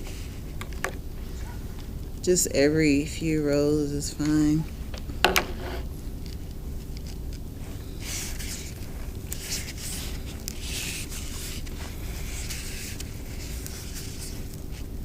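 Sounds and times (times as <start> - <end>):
twine rubbing and scraping: 5.4 - 5.9.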